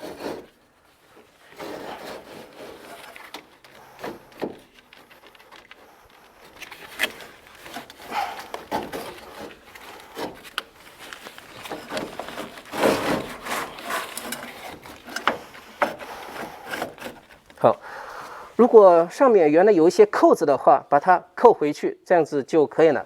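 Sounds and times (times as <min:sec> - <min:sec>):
filter frame scraping housing: 0:01.5 - 0:17.7.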